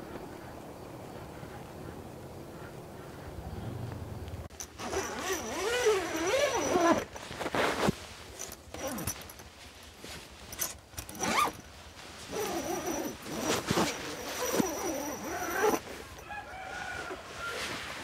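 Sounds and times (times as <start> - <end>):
rooster crowing: 16.2 - 17.8.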